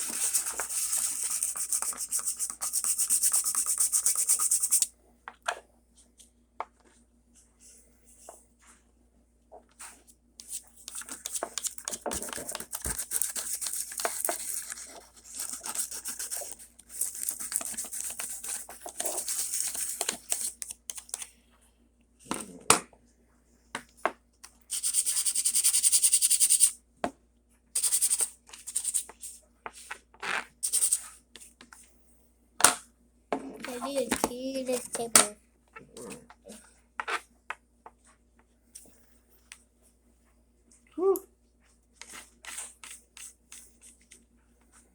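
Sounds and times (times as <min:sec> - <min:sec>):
sandpaper rubbing by hand: 0:00.0 - 0:04.9.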